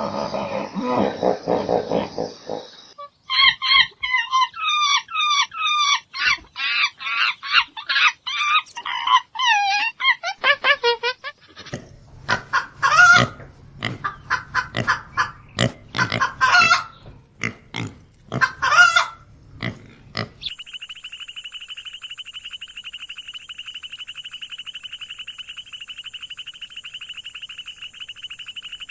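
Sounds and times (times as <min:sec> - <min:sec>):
farm animals calling: 0:00.0 - 0:28.9
fast-pulsing high trill: 0:20.4 - 0:28.9.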